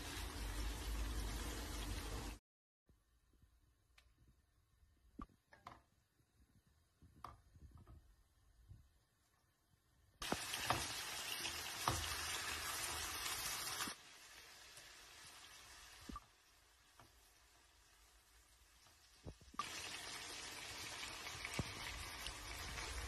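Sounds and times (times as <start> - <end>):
chicken frying in oil: 0.0 - 2.4, 10.2 - 23.0.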